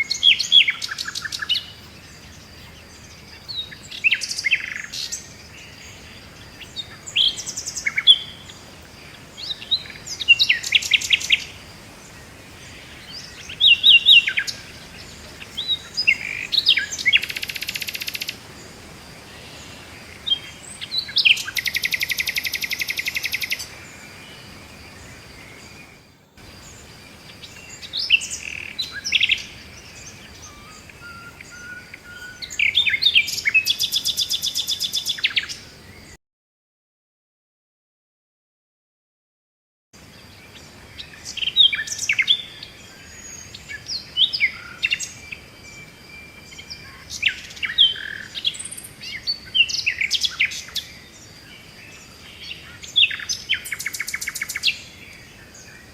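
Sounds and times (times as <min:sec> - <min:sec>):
faint steady hiss: 0:00.0 - 0:36.2, 0:40.0 - 0:55.9
songbirds singing and chirping: 0:00.0 - 0:36.2, 0:40.0 - 0:55.9
rapid bird trills: 0:19.3 - 0:36.1.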